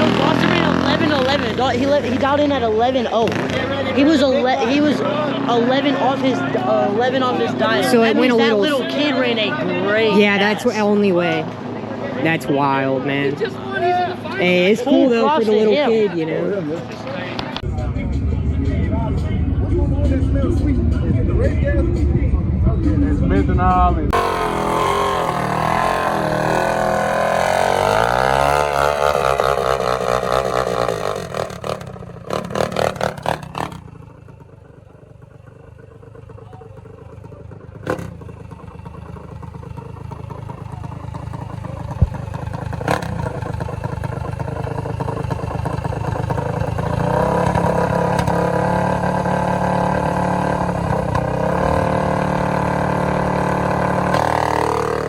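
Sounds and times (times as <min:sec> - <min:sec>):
minibike engine revving: 0:00.0 - 0:15.4, 0:24.1 - 0:35.0, 0:35.7 - 0:55.0
steady engine note: 0:00.0 - 0:15.6, 0:17.6 - 0:55.0
engine throttle blips: 0:16.9 - 0:55.0.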